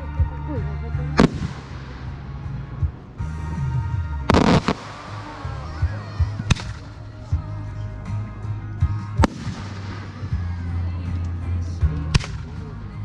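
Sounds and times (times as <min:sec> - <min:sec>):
music: 0:00.0 - 0:13.0
firework crackle: 0:01.2 - 0:02.8, 0:04.3 - 0:07.2, 0:09.2 - 0:10.7
firework shells bursting: 0:04.3 - 0:07.1.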